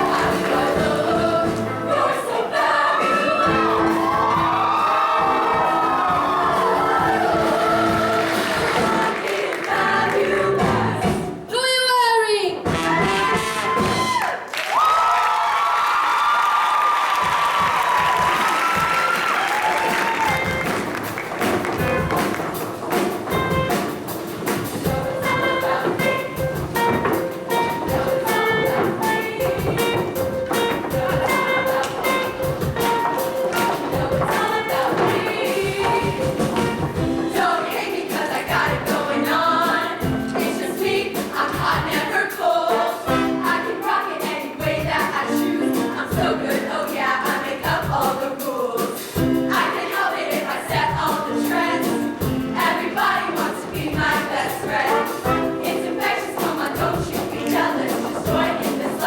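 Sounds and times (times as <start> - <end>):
live band playing: 0.0 - 2.1, 3.0 - 14.3, 17.9 - 59.0
choir singing in parts: 0.0 - 11.5, 23.8 - 59.0
steady drum beat: 0.0 - 11.8, 12.5 - 14.2, 17.2 - 59.0.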